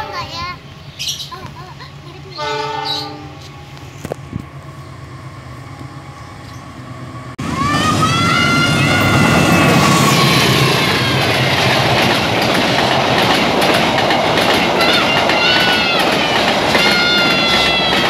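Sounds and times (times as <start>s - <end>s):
loud train rumble: 0.0s - 18.0s
train engine hum: 0.0s - 18.0s
locomotive horn blast: 2.4s - 3.8s, 7.4s - 11.5s, 14.8s - 18.0s
high whining tones: 3.4s - 13.0s.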